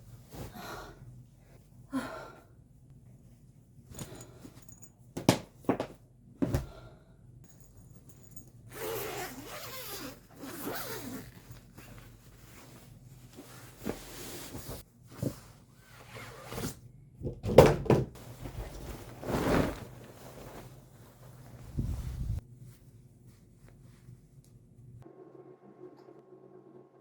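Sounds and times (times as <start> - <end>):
rasping zip-like handling noise: 8.7 - 12.4.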